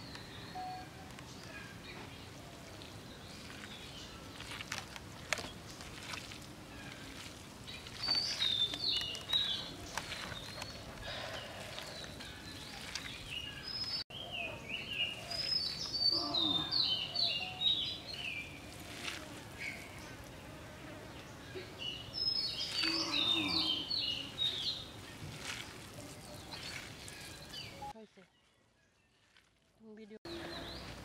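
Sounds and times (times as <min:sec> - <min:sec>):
faint outdoor background noise: 0:00.0 - 0:31.0
songbird whistling: 0:00.4 - 0:01.0.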